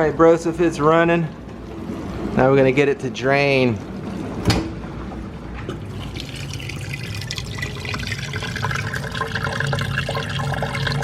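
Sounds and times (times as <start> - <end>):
dishwasher pump hum: 0.0 - 11.0
water gurgling and splashing: 5.8 - 11.0.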